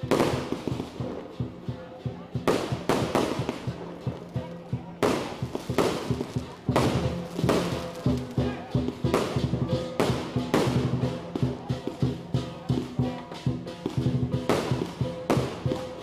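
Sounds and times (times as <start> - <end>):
fireworks bursting: 0.0 - 1.4, 2.4 - 4.4, 5.0 - 12.0, 13.8 - 16.0.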